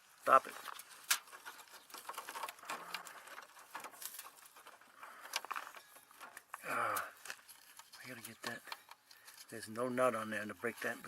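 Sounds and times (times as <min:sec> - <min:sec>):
faint irregular ticks: 0:00.6 - 0:11.0.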